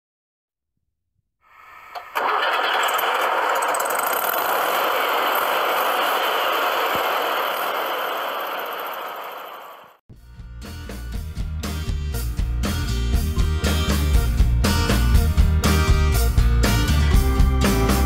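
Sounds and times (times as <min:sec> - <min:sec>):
car engine starting and running: 0:02.0 - 0:10.0.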